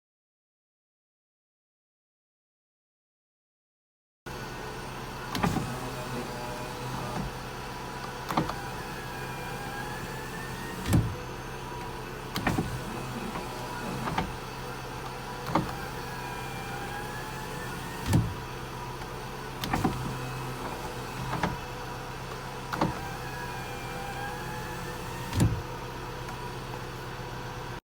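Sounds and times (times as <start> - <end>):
power window motor whining: 4.3 - 27.8
window glass clunking to a stop: 5.3 - 7.4, 8.2 - 8.8, 10.0 - 11.2, 12.3 - 18.4, 19.0 - 21.7, 22.7 - 25.7.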